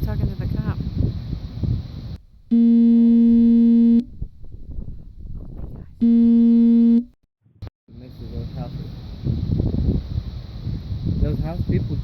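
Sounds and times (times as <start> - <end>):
faint wind noise: 0.0 - 6.1, 7.9 - 12.0
electronic buzzing tone: 2.5 - 4.1, 6.0 - 7.2.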